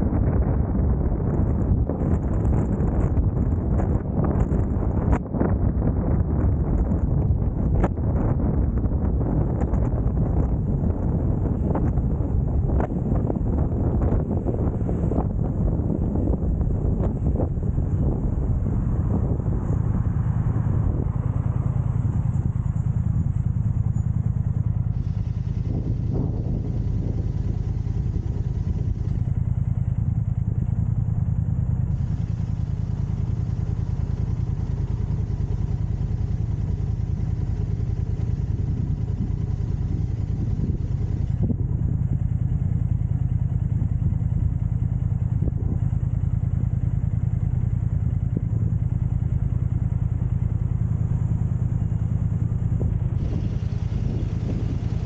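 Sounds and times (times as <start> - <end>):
engine low rumble: 0.0 - 55.0.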